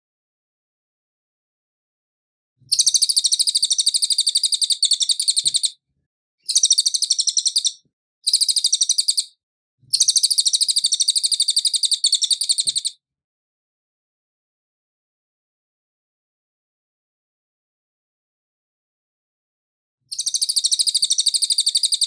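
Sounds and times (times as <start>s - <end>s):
songbird high-pitched trill: 2.7s - 5.7s, 6.5s - 9.4s, 10.0s - 13.0s, 20.1s - 22.0s.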